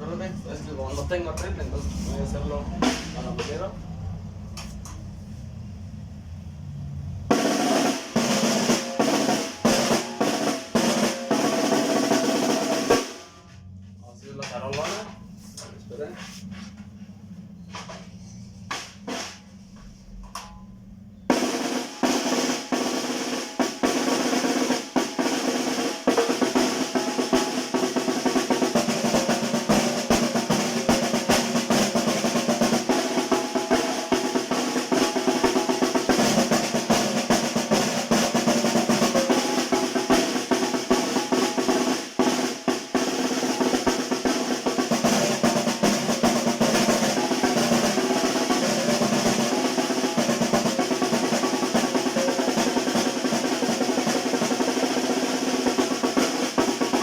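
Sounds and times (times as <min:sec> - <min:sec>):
snare drum rolls: 0:00.0 - 0:04.0, 0:07.3 - 0:13.6, 0:17.7 - 0:20.5, 0:21.3 - 0:57.0.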